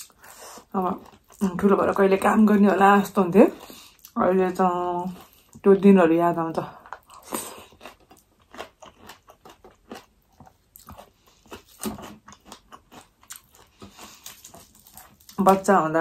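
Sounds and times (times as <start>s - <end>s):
person chewing food: 0.0s - 1.5s, 3.6s - 4.2s, 6.8s - 15.5s.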